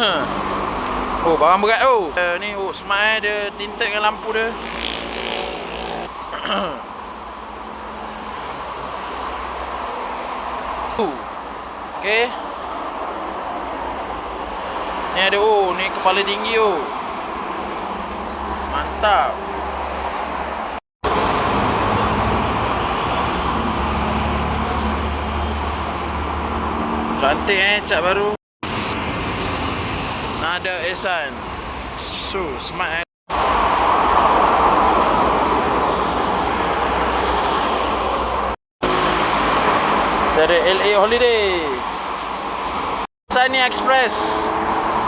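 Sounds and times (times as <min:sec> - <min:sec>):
highway traffic rushing: 0:00.0 - 0:45.0
diesel engine hum: 0:19.4 - 0:32.6.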